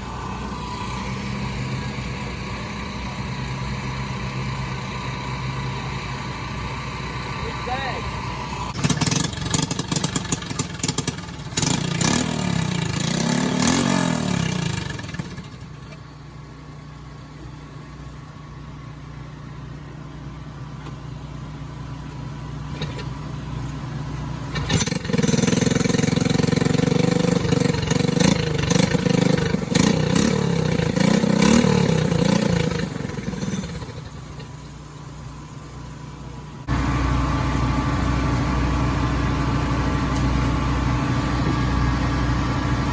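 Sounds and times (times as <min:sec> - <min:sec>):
steady engine hum: 0:00.0 - 0:42.9.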